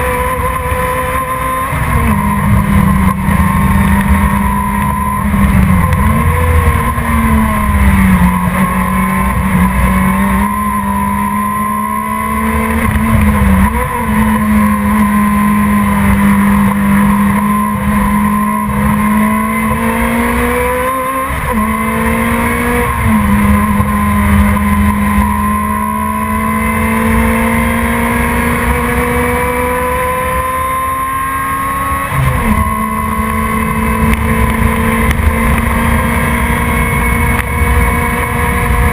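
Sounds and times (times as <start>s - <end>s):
race car engine running hard: 0.0s - 38.9s.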